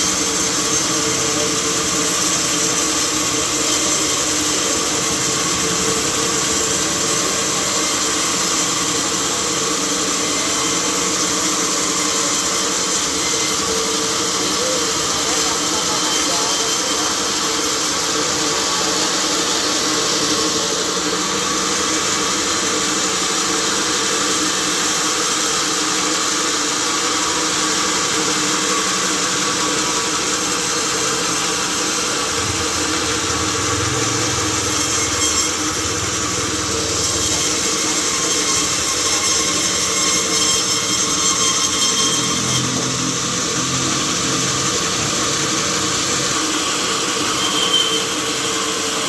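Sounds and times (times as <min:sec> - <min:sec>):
sawmill machinery running: 0:00.0 - 0:49.0.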